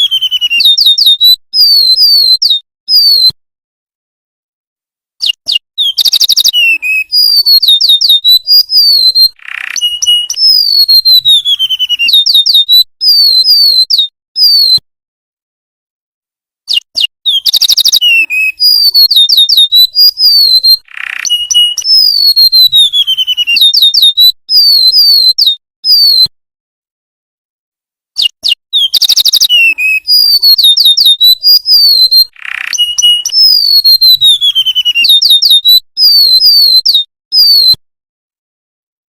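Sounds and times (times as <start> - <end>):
bird singing high thin whistles: 5.2 - 14.8, 16.7 - 26.3, 28.2 - 37.8.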